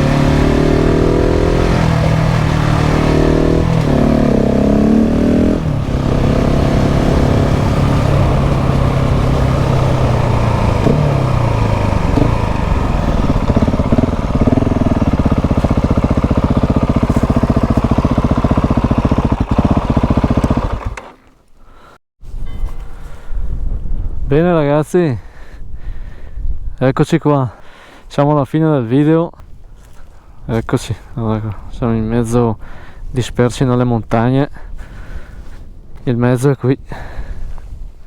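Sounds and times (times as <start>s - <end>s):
motorcycle engine revving: 0.0s - 21.3s.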